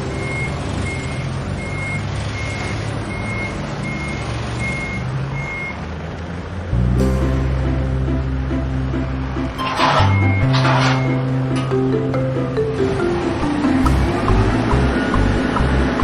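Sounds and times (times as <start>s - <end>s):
music: 0.0s - 1.3s, 6.8s - 16.0s
reversing alarm beeping: 0.0s - 5.8s, 9.6s - 11.3s
low engine rumble: 6.6s - 16.0s.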